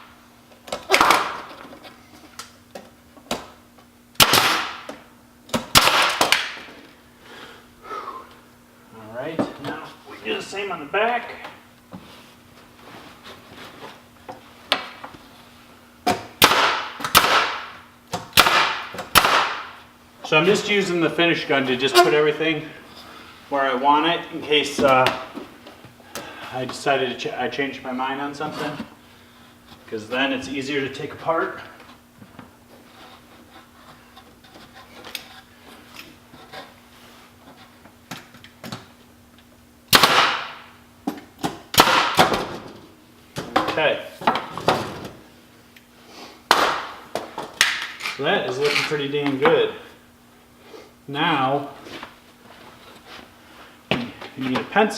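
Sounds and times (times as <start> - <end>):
nail gun shots: 4.2 - 4.9, 5.6 - 6.6, 16.4 - 17.7, 18.3 - 19.7, 39.9 - 40.6, 41.7 - 42.4, 46.5 - 47.0.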